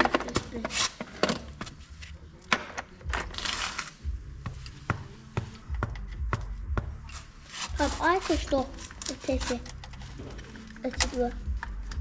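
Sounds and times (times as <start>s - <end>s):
hand tools clicking and clattering: 7.1s - 12.0s.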